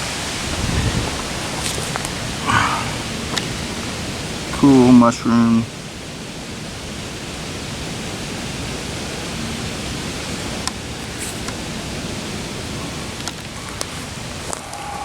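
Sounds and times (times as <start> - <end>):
rain falling through woods: 0.0 - 15.0
single raindrops ticking: 3.0 - 4.6, 10.4 - 11.7, 13.1 - 14.8.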